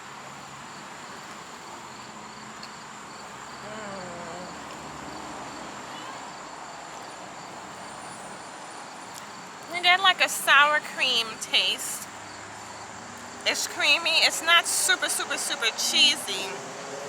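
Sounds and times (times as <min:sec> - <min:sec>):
insects trilling: 0:00.4 - 0:16.0
faint distant voice: 0:03.6 - 0:04.8.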